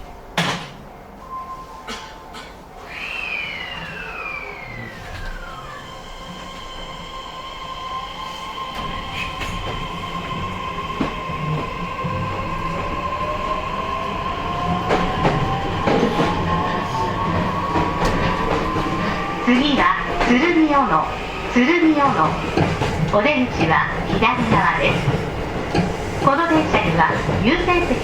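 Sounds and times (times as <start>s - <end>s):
train motor whine: 2.8s - 11.3s.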